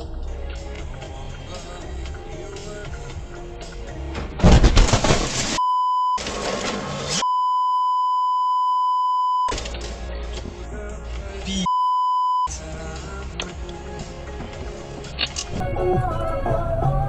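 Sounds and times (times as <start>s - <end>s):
in-car audio: 5.2s - 17.0s
censor bleep tone: 5.6s - 6.2s, 7.2s - 9.5s, 11.6s - 12.5s.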